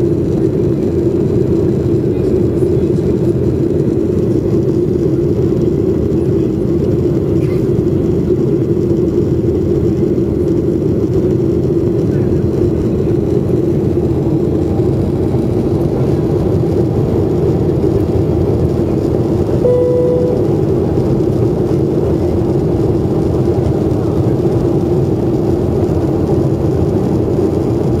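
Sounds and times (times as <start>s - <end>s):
jet airliner cabin rumble: 0.0s - 28.0s
short chime: 19.7s - 20.6s.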